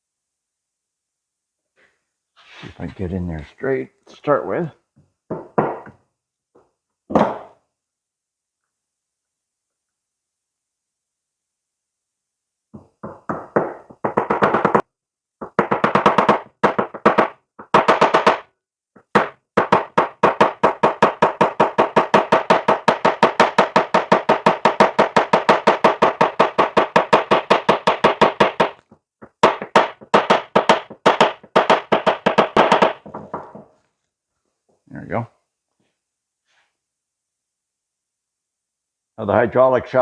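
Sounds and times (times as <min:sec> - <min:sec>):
rapid hammer taps: 0:12.8 - 0:33.7.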